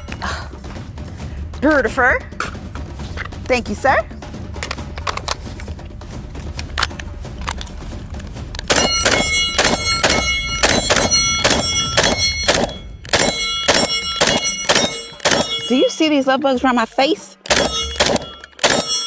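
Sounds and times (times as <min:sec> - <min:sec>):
rifle shots: 0:08.7 - 0:15.7, 0:17.5 - 0:19.0
steel targets ringing: 0:08.7 - 0:16.2, 0:17.5 - 0:19.0.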